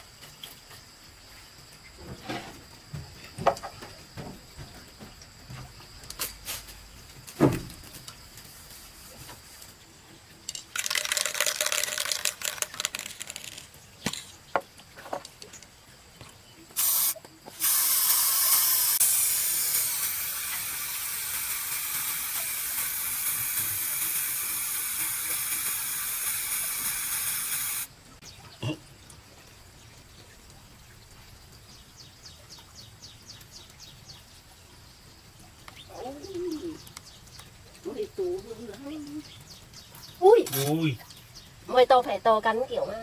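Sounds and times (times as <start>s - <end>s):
spray hissing: 10.8s - 13.7s, 16.8s - 27.9s.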